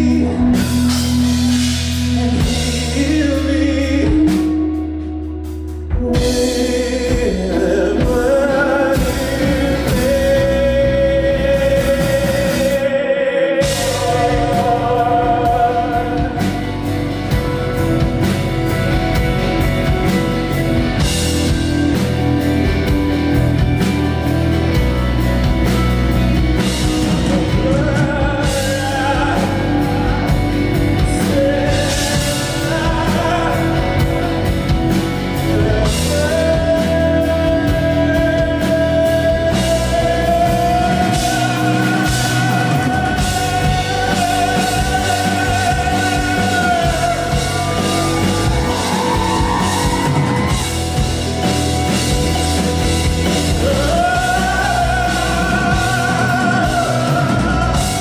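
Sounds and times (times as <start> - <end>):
rock band playing: 0.0 - 58.0
melodic line holding long note: 13.6 - 58.0.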